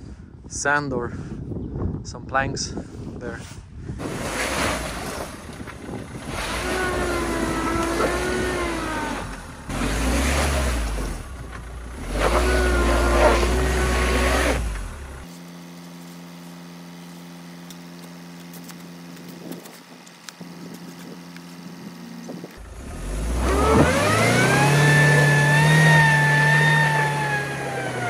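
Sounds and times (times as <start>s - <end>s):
car engine revving: 4.0s - 15.4s, 21.4s - 28.0s
steady low hum: 10.8s - 23.9s.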